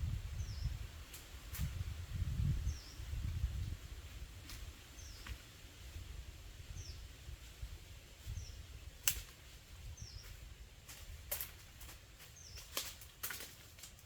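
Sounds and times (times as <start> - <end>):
bird chirping: 0.4 - 0.8, 2.6 - 3.2, 4.9 - 5.4, 6.7 - 7.1, 9.9 - 10.4, 12.3 - 12.8
sharp snaps: 9.0 - 9.4.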